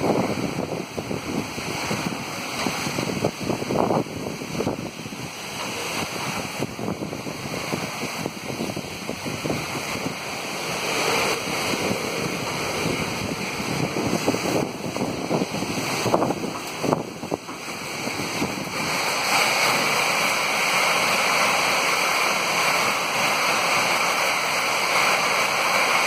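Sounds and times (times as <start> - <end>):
wind gusts buffeting microphone: 0.0 - 19.7
torrential rain pouring: 0.0 - 26.0.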